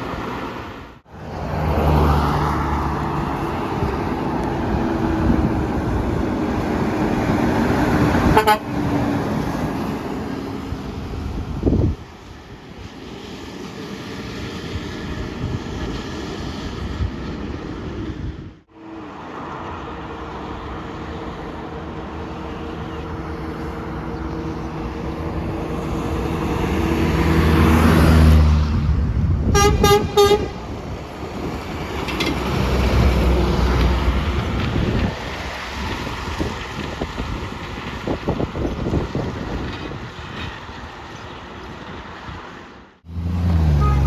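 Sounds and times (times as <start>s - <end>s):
vehicle passing: 0.0s - 11.8s, 18.8s - 36.8s, 43.0s - 44.0s
truck passing by: 0.0s - 12.1s, 18.7s - 44.0s
truck horn blasts: 8.2s - 8.8s, 29.5s - 30.7s, 43.1s - 44.0s.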